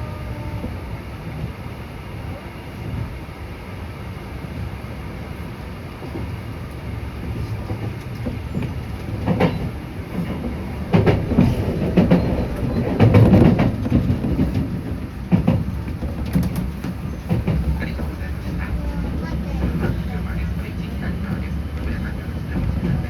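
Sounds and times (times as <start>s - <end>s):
train rumble inside car: 0.0s - 23.0s
wheels clacking on rails: 4.7s - 23.0s.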